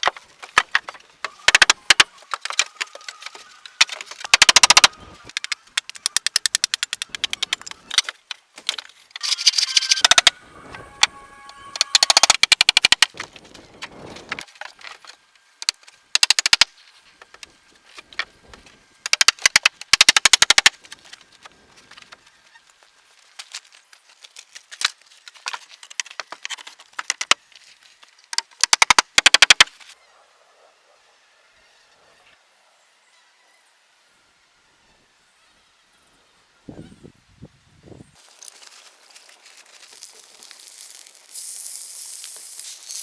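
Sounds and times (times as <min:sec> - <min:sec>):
bursts of rapid sharp knocks: 0:03.8 - 0:04.9, 0:19.1 - 0:20.7, 0:28.6 - 0:29.7.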